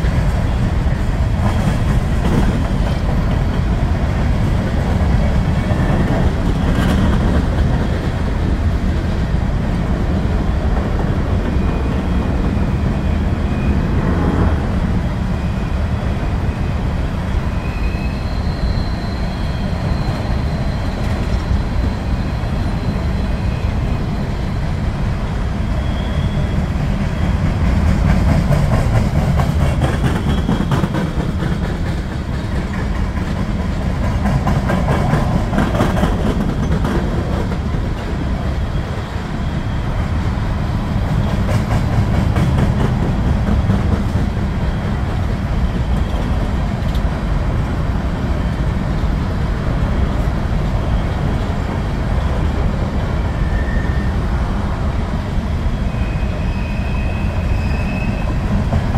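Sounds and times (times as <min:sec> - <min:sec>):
train wheels rumbling on rails: 0:00.0 - 0:58.9
wheels clacking over rail joints: 0:26.6 - 0:39.0, 0:40.9 - 0:47.3.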